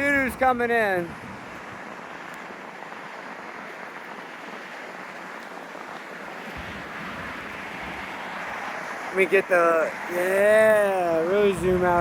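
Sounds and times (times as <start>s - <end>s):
wind buffeting microphone: 0.0s - 12.0s
wind rushing: 6.5s - 9.2s, 11.2s - 12.0s.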